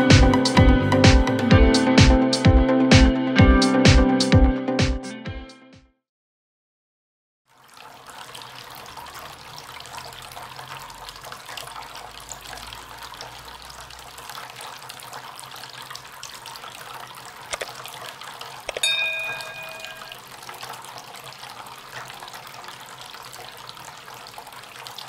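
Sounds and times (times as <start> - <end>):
fountain water trickling: 7.5 - 25.0
short clicks: 17.5 - 17.8, 18.7 - 18.9.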